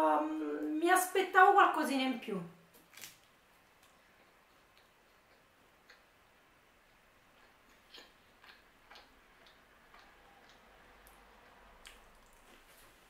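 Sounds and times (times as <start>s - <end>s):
faint crunchy chewing: 2.8s - 13.0s.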